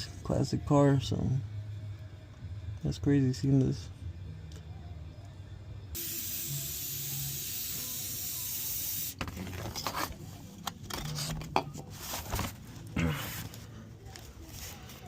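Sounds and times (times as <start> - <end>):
steady hiss: 6.0 - 9.2.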